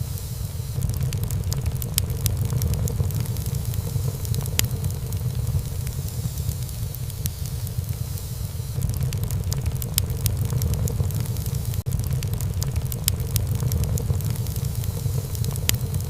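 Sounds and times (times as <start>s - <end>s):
low rumble of flames: 0.0s - 16.0s
sharp pops of fire: 0.0s - 16.0s
wood fire crackling: 0.0s - 16.0s.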